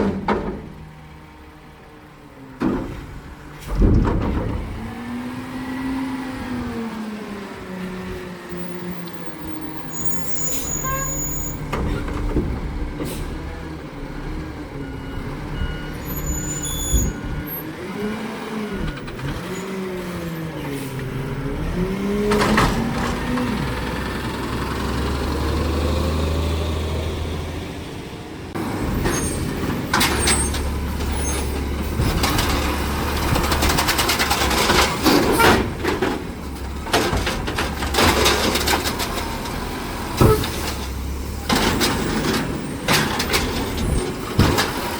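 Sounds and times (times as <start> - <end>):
knocks and clattering: 0.0 - 0.9, 2.6 - 5.0, 11.6 - 13.4, 29.0 - 44.9
garbage truck engine and hydraulics: 0.0 - 44.9
air brakes: 10.0 - 12.1, 13.0 - 13.4.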